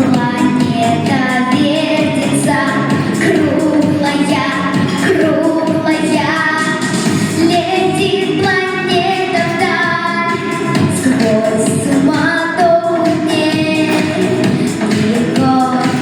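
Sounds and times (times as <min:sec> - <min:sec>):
woman singing: 0:00.0 - 0:16.0
instrumental accompaniment: 0:13.1 - 0:16.0.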